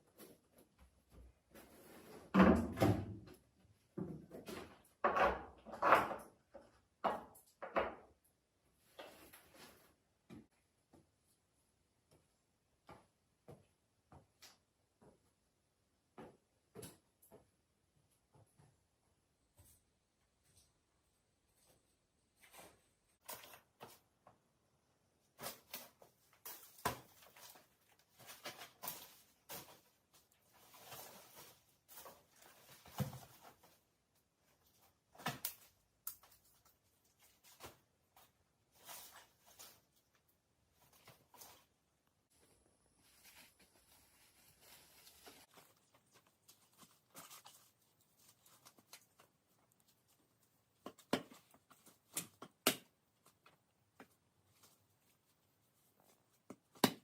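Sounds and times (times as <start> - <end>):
rustling and scraping: 0.0 - 2.4, 8.7 - 10.2, 25.4 - 52.4
objects knocking and scraping: 1.2 - 8.2.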